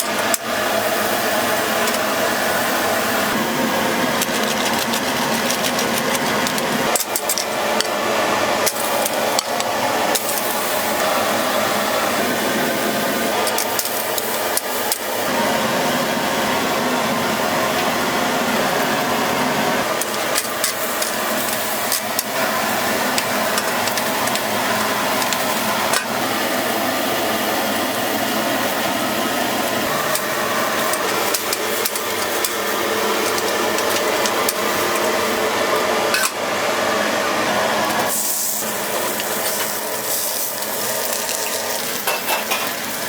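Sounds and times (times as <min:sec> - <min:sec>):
griddle sizzling: 0:00.0 - 0:43.0
metal utensils scraping griddle: 0:38.0 - 0:43.0.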